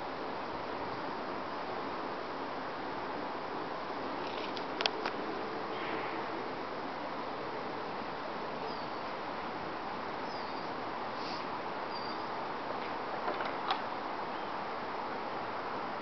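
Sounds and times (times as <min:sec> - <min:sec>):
wind rustling tree leaves: 0:00.0 - 0:16.0
faint high bird chirps: 0:08.6 - 0:09.0, 0:10.2 - 0:10.8, 0:11.9 - 0:12.4.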